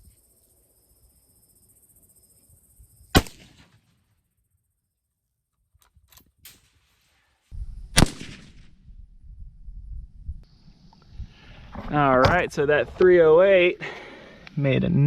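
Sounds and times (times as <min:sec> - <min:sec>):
rifle shots: 0:03.2 - 0:03.8, 0:08.0 - 0:08.8.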